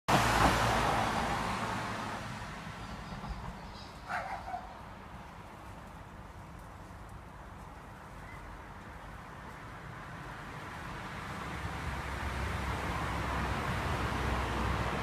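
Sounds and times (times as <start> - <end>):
passing vehicle rush: 0.1 - 6.3, 9.2 - 15.0.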